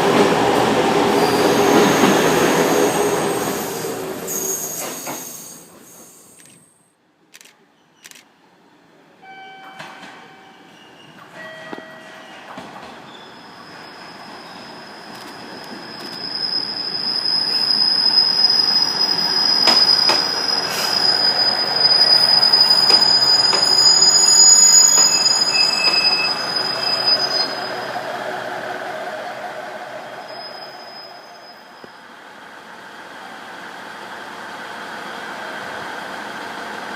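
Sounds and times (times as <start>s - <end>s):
train rolling noise: 9.7s - 36.9s
high wheel squeal: 12.0s - 32.0s.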